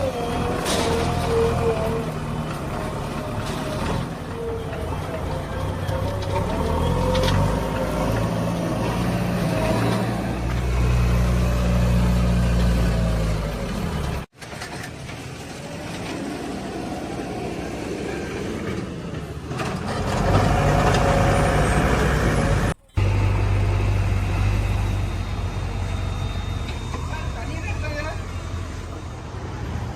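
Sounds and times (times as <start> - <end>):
diesel machinery engine drone: 15.0 - 29.9.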